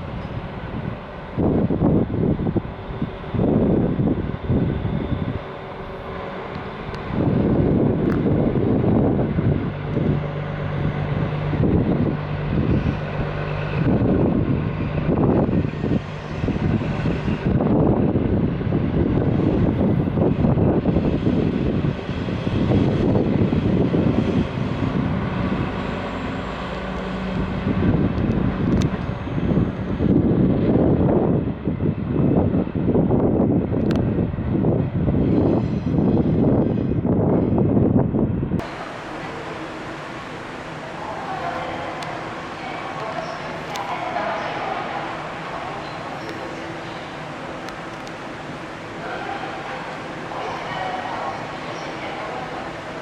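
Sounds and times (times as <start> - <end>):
wind buffeting microphone: 0.0 - 39.0
diesel railcar rumble: 0.0 - 53.0.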